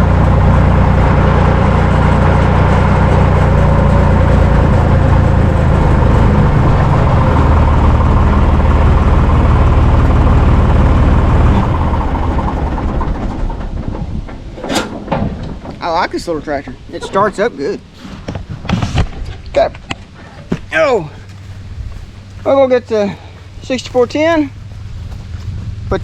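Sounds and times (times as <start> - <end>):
diesel tractor engine idling: 0.0 - 14.6, 20.3 - 26.0.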